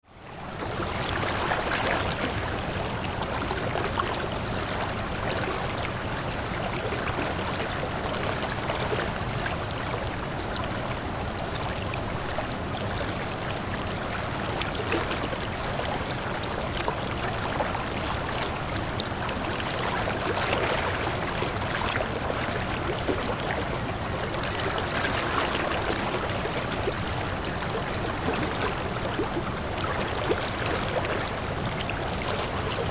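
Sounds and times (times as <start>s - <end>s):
stream of water running: 0.0s - 32.9s.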